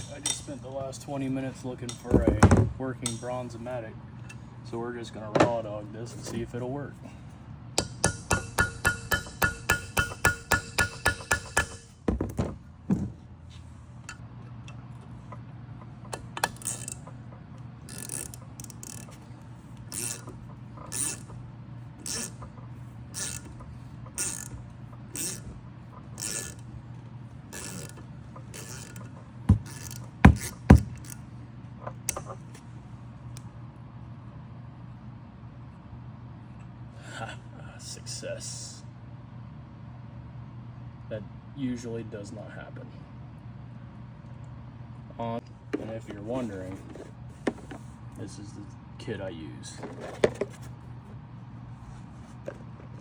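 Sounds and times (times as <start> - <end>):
ratchet wrench clicking: 7.8 - 11.9, 16.4 - 17.0, 17.8 - 19.2, 19.9 - 20.3, 20.9 - 21.3, 22.0 - 22.4, 23.2 - 23.5, 24.2 - 24.5, 25.1 - 25.5, 26.2 - 26.6, 27.5 - 31.2
sharp metal knocks: 7.8 - 13.0, 29.5 - 31.2.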